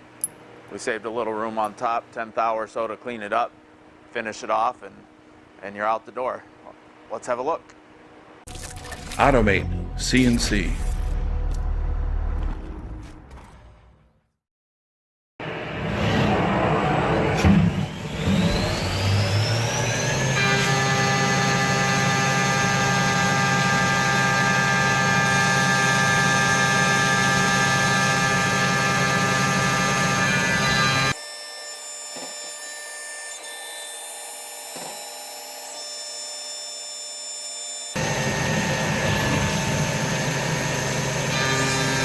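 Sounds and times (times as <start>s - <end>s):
milling machine spindle whine: 16.1s - 31.2s, 34.1s - 42.0s
cutting noise: 25.0s - 31.2s.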